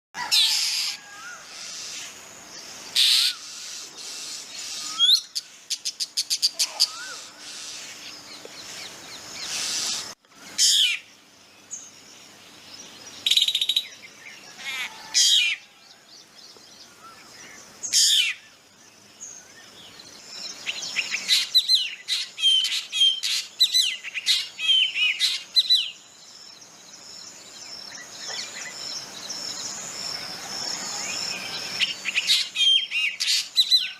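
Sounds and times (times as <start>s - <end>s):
bird calling: 2.9s - 11.1s.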